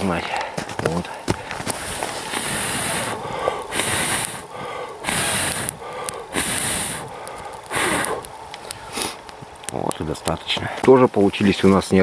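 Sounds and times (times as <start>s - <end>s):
footsteps crunching in snow: 0.0s - 3.4s
sharp snaps: 2.3s - 10.6s.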